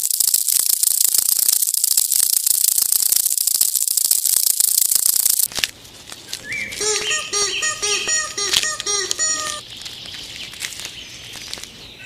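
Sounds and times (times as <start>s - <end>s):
high-pitched rattling hiss: 0.0s - 5.5s
short bird calls: 6.4s - 12.0s.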